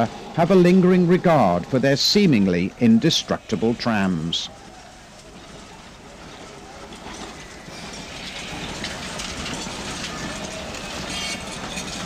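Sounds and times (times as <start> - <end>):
electric tram running on rails: 0.0 - 12.0
metallic wheel squeals and ticks: 3.2 - 12.0.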